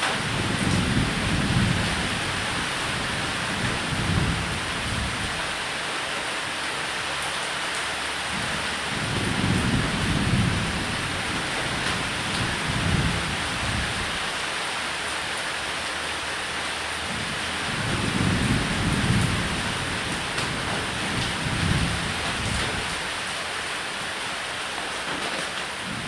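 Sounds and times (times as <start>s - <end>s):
rain falling on a roof: 0.0s - 26.0s
thunder rumbling: 0.1s - 5.6s, 8.3s - 14.3s, 17.1s - 23.2s.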